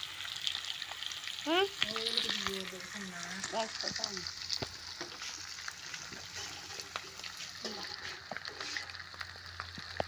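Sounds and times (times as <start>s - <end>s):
meat sizzling in a wok: 0.0s - 10.0s
metal spatula scraping a pan: 6.1s - 9.2s.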